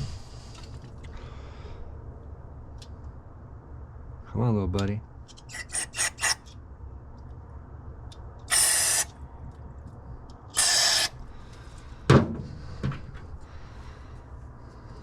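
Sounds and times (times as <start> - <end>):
aerosol spray hissing: 8.5 - 9.1, 10.6 - 11.1.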